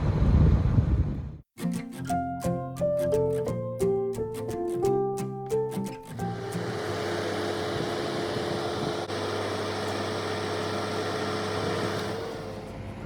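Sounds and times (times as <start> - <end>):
truck engine running: 6.2 - 13.0.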